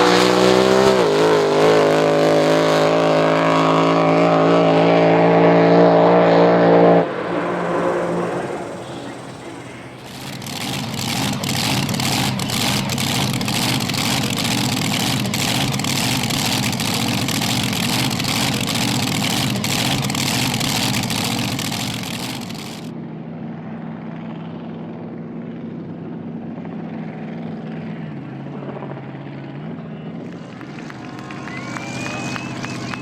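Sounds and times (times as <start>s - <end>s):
loud racing boat engine: 0.0s - 22.9s, 24.6s - 33.0s
low engine drone: 0.0s - 33.0s
exhaust crackling: 4.7s - 22.9s, 30.2s - 33.0s.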